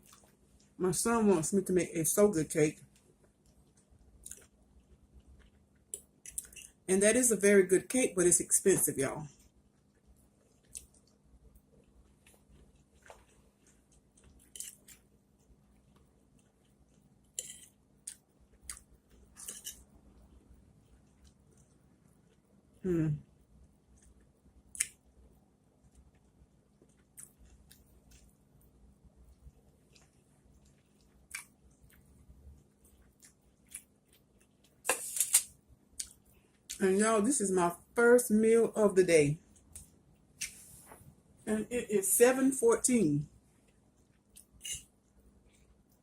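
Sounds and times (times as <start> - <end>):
person chewing food: 0.0 - 0.8, 2.9 - 6.8, 9.4 - 25.0, 25.8 - 28.5, 29.1 - 36.8, 43.5 - 46.0.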